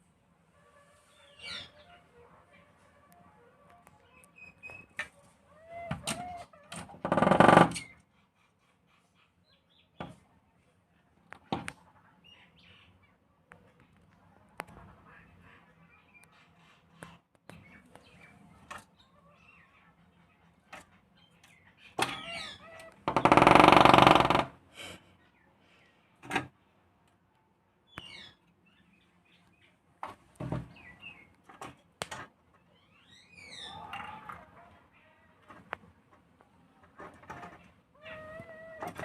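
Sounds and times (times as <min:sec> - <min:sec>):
woodpecker knocking: 0:23.0 - 0:24.5
high falling bird calls: 0:32.8 - 0:34.2.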